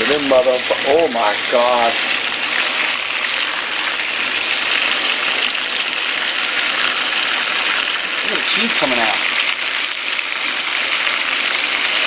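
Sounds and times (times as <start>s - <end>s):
meatballs sizzling in a frying pan: 0.0s - 12.0s.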